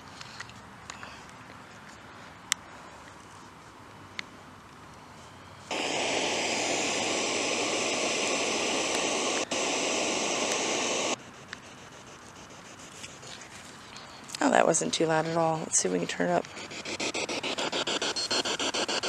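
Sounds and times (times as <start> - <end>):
static hiss from loudspeaker: 5.7 - 11.2.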